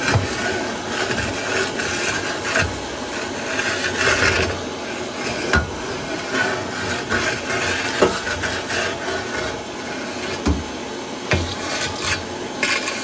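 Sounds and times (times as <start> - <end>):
scraping on metal burners: 0.0 - 13.0.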